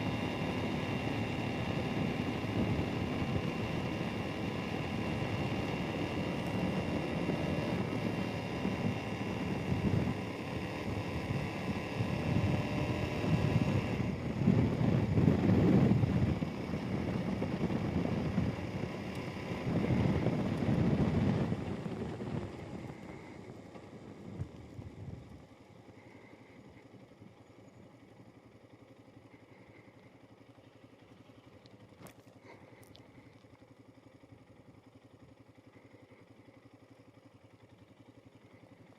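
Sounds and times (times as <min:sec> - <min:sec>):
motorcycle engine running: 0:00.0 - 0:38.9
wind noise: 0:11.8 - 0:23.4.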